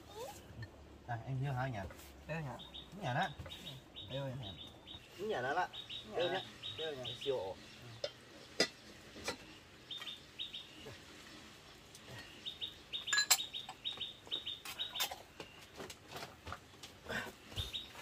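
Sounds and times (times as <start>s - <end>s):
small bird chirping: 2.3s - 15.8s, 17.5s - 18.0s
utensils clinking against pot: 8.0s - 10.1s, 13.1s - 13.8s.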